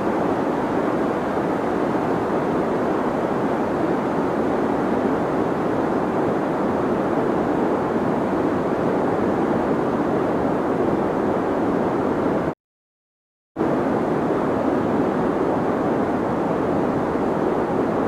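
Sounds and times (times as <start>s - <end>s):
deep white noise: 13.6s - 18.0s.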